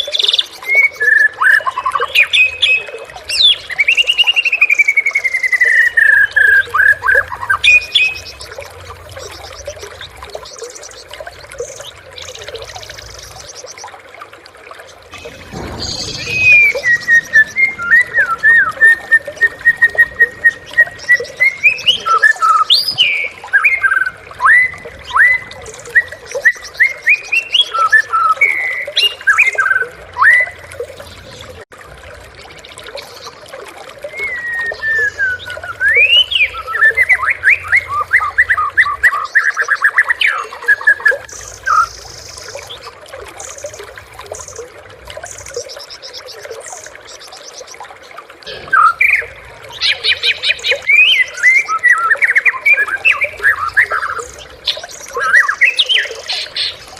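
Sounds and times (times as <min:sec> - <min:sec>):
songbird whistling and trilling: 0:15.2 - 0:30.6, 0:34.1 - 0:42.5, 0:48.5 - 0:56.8.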